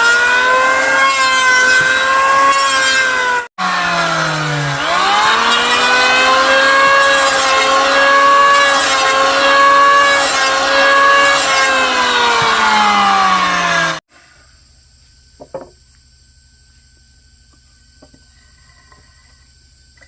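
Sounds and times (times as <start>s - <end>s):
small high-revving motor: 0.0s - 14.0s.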